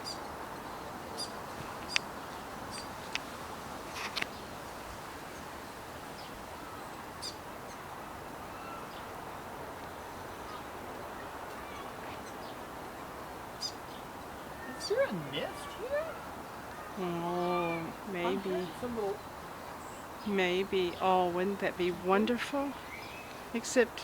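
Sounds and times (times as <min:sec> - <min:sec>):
bird chip calls: 0:13.6 - 0:21.2.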